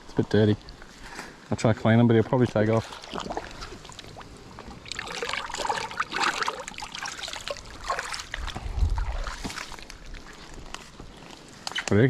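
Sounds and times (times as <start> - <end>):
creek water trickling: 0.0 - 12.0
fish rinsed with splashes: 2.6 - 10.8.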